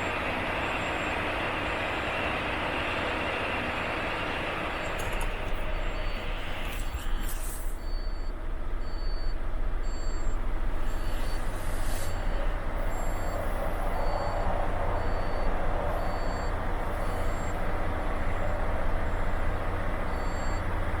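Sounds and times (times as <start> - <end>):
diesel truck engine running: 0.0 - 21.0
reversing alarm beeping: 0.0 - 21.0
air brake hisses: 6.2 - 8.0, 10.8 - 14.3.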